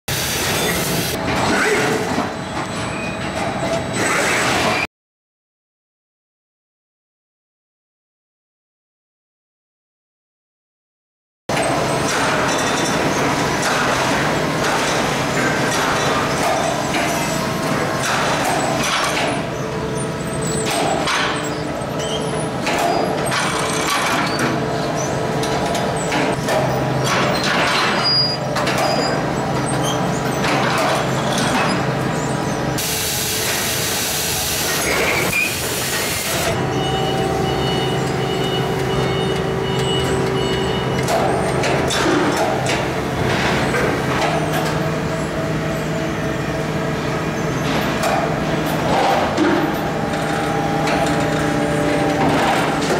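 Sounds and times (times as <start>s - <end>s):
machinery humming: 28.4s - 52.9s
loud air hiss: 32.8s - 36.5s.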